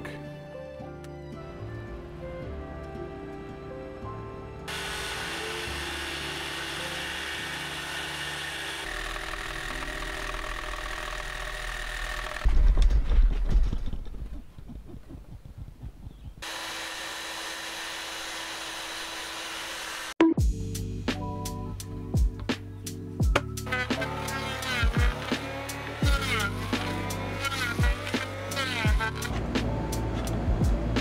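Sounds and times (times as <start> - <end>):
power tool on wood: 4.7 - 12.5, 16.4 - 20.2, 23.6 - 30.3.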